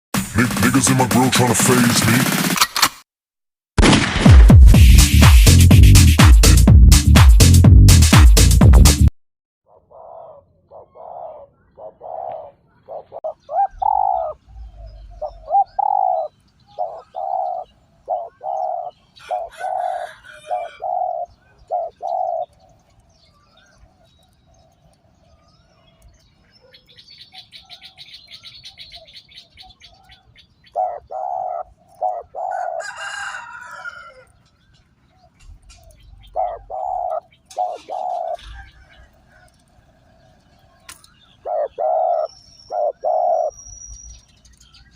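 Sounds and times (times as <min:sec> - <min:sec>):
dove cooing: 0:09.7 - 0:22.6, 0:30.7 - 0:34.2, 0:35.4 - 0:39.6, 0:41.4 - 0:43.5
bird chirping: 0:09.7 - 0:32.7, 0:34.2 - 0:44.9.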